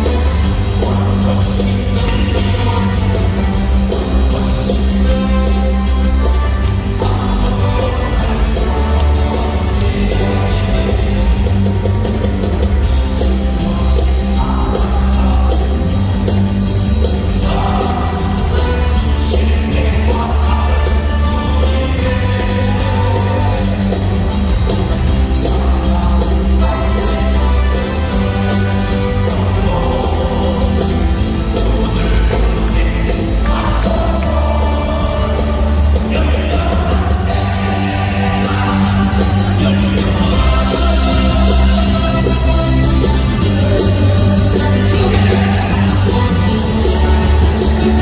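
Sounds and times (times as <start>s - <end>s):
band playing upbeat worship music: 0.0s - 48.0s
people singing: 0.0s - 48.0s
crowd shouting: 21.7s - 48.0s.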